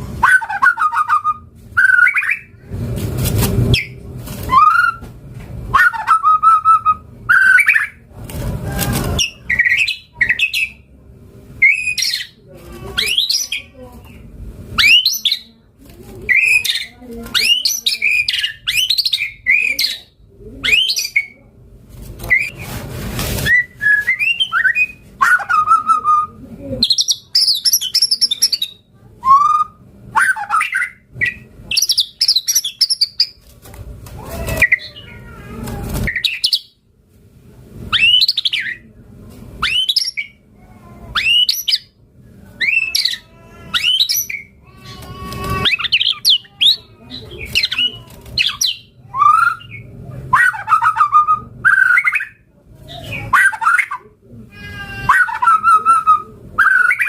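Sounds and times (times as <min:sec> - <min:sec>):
bird singing whistled phrases: 0:55.2 - 0:57.0.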